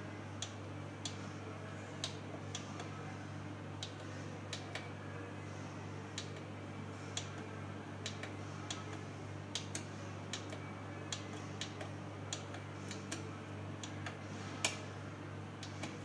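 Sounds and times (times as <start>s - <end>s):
steady low hum: 0.0s - 16.0s
control panel buttons clicking: 8.0s - 14.9s.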